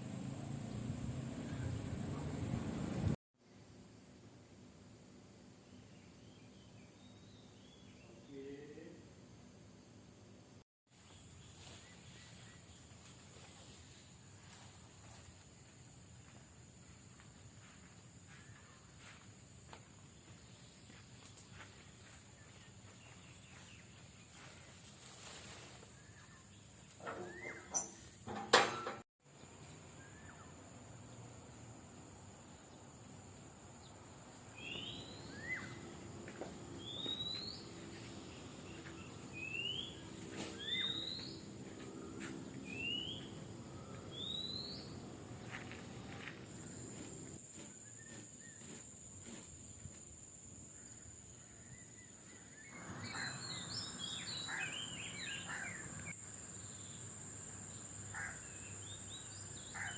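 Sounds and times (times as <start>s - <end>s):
bird chirping: 26.0s - 28.3s, 33.8s - 45.8s, 50.7s - 59.9s.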